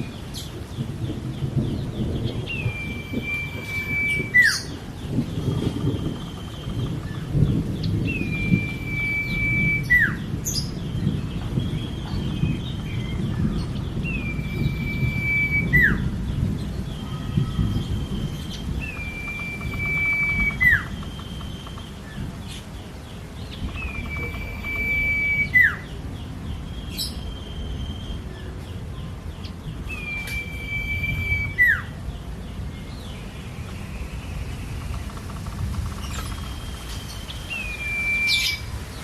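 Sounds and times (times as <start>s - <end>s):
bird whistling song: 1.7s - 22.6s, 23.4s - 26.0s, 26.7s - 28.6s, 29.8s - 32.0s, 32.8s - 39.0s
faint bird chattering: 23.5s - 25.8s, 34.4s - 38.7s.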